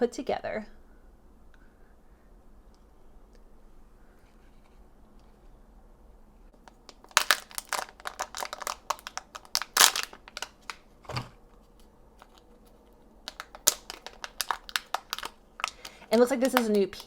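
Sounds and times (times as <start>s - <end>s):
plastic wrapping crinkling: 6.6s - 10.9s, 11.6s - 17.0s.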